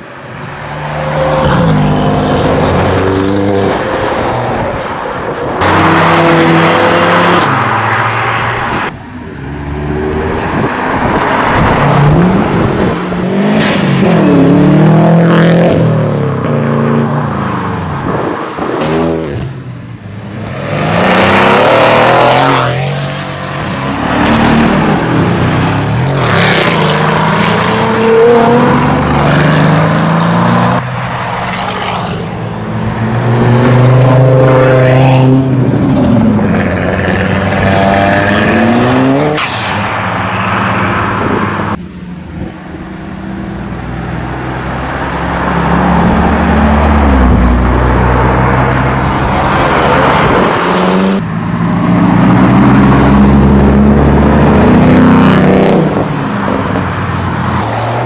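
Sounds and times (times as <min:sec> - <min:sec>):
car engines revving hard: 0:00.0 - 0:58.0.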